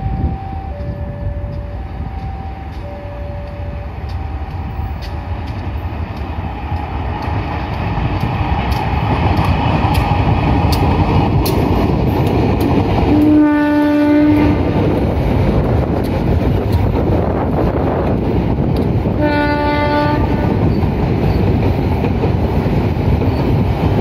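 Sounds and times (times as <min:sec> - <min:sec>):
wheels clicking over rail joints: 0:00.8 - 0:24.0
locomotive horn: 0:13.1 - 0:14.8, 0:19.2 - 0:20.6.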